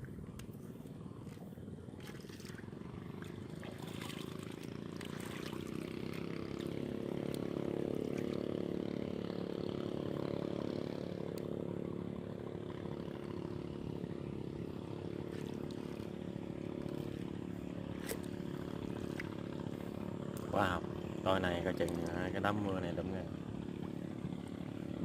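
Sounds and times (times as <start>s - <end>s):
boat motor running: 0.0s - 25.0s.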